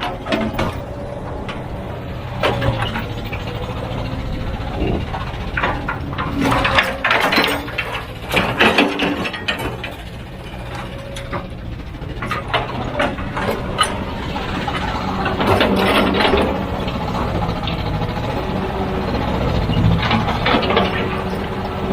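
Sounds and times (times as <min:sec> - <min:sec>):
clanks of metal and rock: 0:00.0 - 0:21.9
diesel engine rumble: 0:00.0 - 0:21.9.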